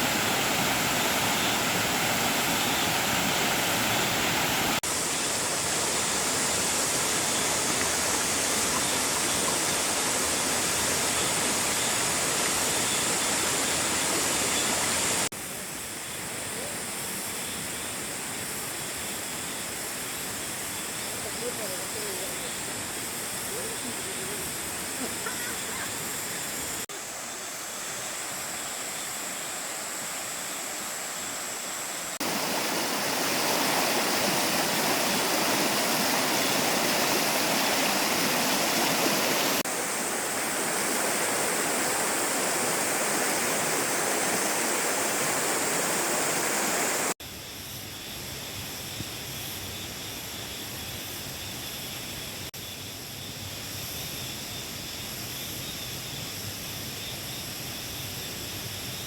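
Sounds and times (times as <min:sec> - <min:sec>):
stream water rushing: 0:00.0 - 0:15.3, 0:20.2 - 0:47.2.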